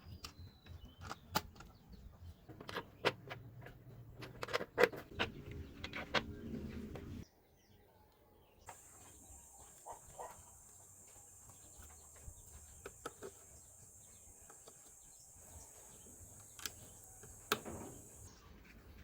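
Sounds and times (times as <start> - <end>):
steady high hiss: 8.7 - 18.4.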